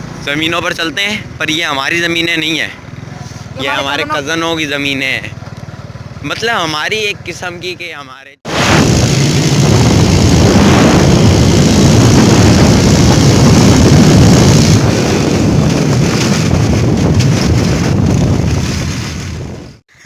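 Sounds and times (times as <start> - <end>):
motorcycle running: 0.0 - 19.8
wind rushing over microphone: 8.5 - 19.8.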